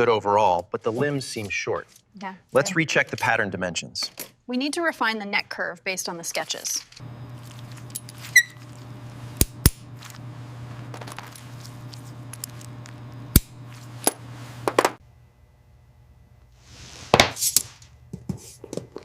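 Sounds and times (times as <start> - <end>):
short squeak: 8.2 - 8.6.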